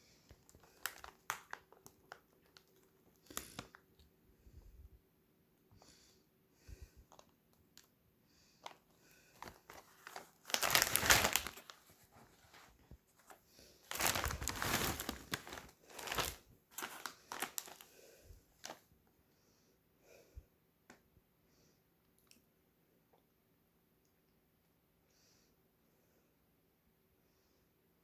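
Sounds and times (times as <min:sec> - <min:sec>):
chip bag crinkling: 0:00.3 - 0:04.0, 0:09.4 - 0:12.7, 0:13.9 - 0:18.0.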